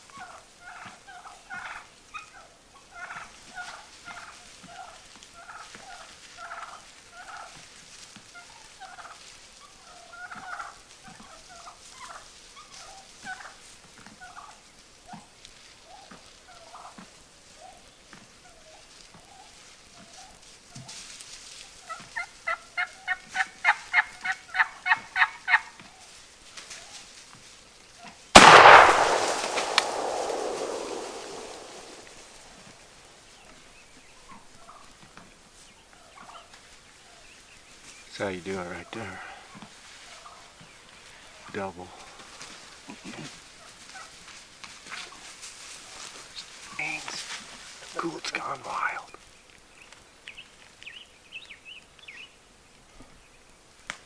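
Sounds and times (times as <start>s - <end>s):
wild turkeys calling: 28.4s - 32.4s.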